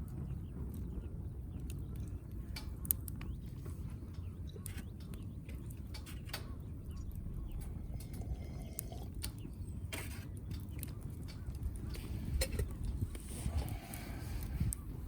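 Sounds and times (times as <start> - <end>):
low steady rumble: 0.0 - 15.0
wood fire crackling: 0.0 - 15.0.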